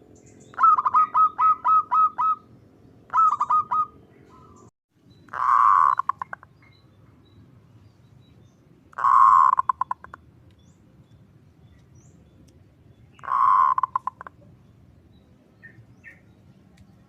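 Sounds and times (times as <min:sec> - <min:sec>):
dove calling: 0:00.1 - 0:06.8, 0:08.9 - 0:10.2, 0:13.1 - 0:14.5.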